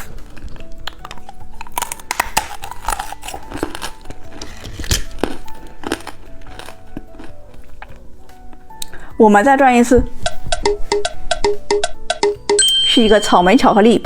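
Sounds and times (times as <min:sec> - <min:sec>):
plastic wrapper crinkling: 0:00.0 - 0:07.9
background music: 0:00.0 - 0:14.0.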